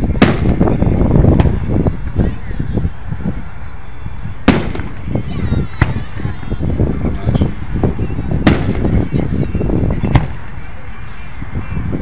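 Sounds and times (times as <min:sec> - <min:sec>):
fireworks bursting: 0:00.0 - 0:01.7, 0:04.4 - 0:06.6, 0:08.4 - 0:09.2
low rumble of fireworks display: 0:00.0 - 0:12.0.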